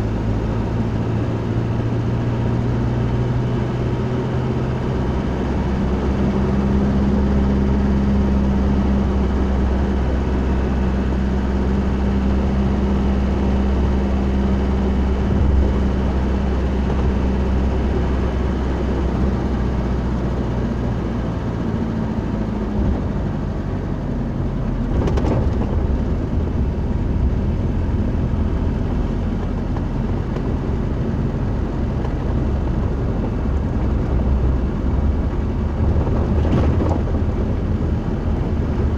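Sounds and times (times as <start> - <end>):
vehicle engine and road noise: 0.0 - 38.9.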